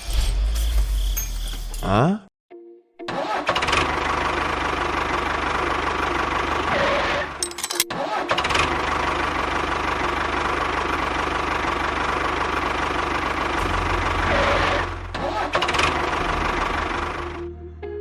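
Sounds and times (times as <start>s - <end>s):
engine humming: 3.6s - 7.8s, 8.6s - 17.5s.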